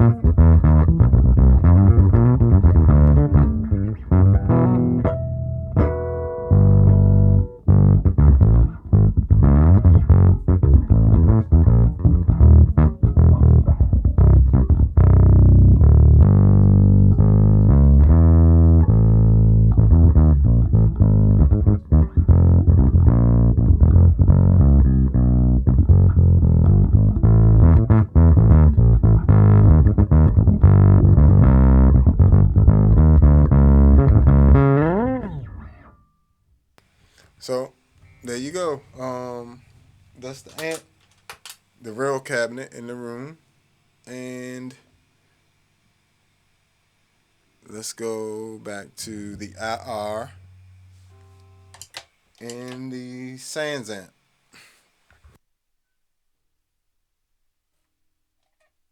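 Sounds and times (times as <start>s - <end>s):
electric bass guitar riff: 0.0s - 36.1s, 47.7s - 52.7s.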